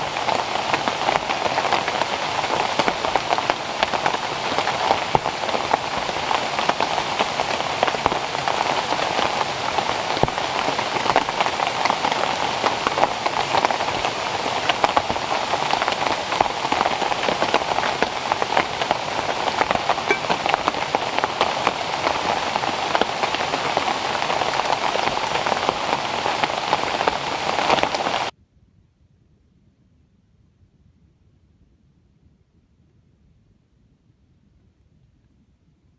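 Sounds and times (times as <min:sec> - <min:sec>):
rain falling: 0:00.0 - 0:28.3.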